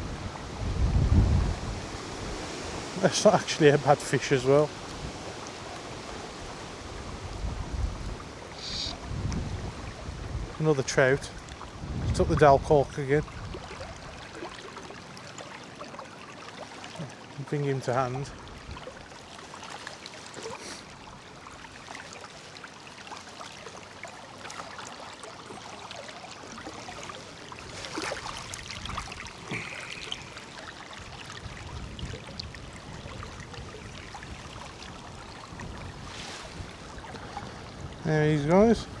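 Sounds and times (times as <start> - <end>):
river water flowing: 0.0 - 39.0
short splashes or knocks: 26.5 - 30.3.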